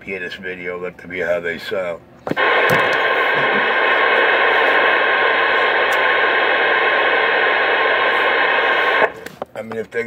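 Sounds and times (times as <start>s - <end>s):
radio static hiss: 2.3s - 9.4s.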